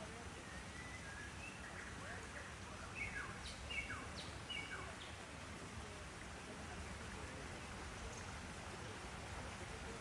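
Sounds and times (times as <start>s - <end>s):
outdoor background hiss: 0.0s - 10.0s
bird chirps: 3.0s - 5.2s.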